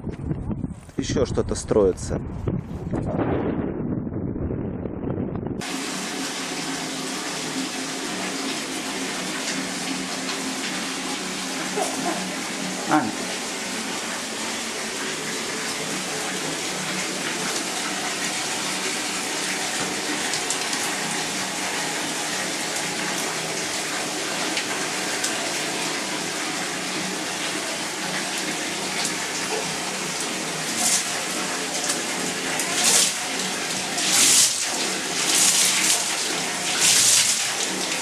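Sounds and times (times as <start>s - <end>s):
waterfall splashing: 5.6s - 38.0s.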